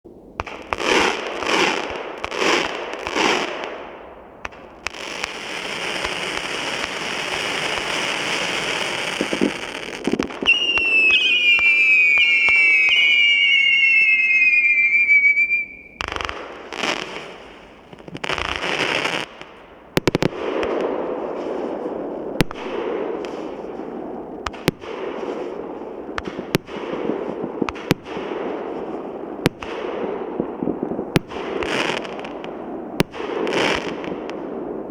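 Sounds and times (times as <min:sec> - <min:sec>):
firework bangs and crackling: 0:00.1 - 0:34.9
fireworks launches: 0:00.4 - 0:34.9
fireworks hissing: 0:04.8 - 0:19.3
descending firework whistles: 0:07.7 - 0:17.1.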